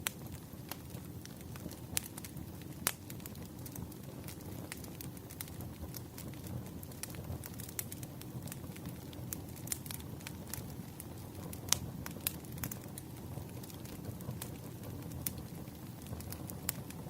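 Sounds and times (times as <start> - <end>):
bonfire crackling: 0.0 - 17.0
sharp pops of burning wood: 0.0 - 17.0.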